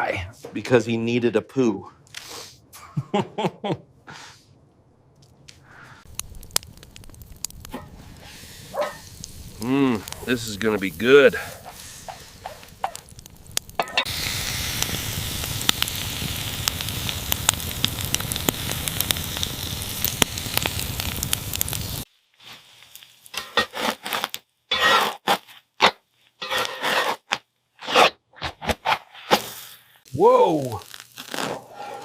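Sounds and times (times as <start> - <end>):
campfire crackling and popping: 5.2 - 24.5, 30.0 - 32.0.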